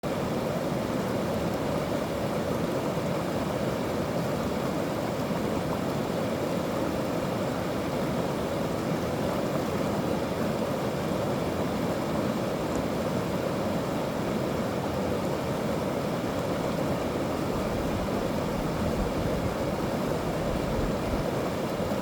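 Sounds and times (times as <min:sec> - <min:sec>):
stream rushing: 0:00.0 - 0:22.0.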